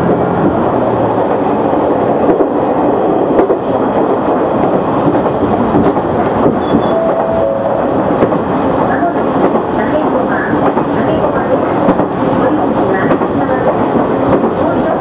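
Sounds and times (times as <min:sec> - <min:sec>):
diesel railcar engine: 0:00.0 - 0:15.0
rail joint clicks: 0:00.0 - 0:15.0.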